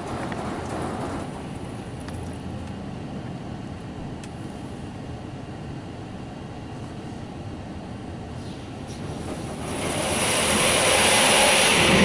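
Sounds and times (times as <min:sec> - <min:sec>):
car wash spray on car: 0:09.0 - 0:12.0.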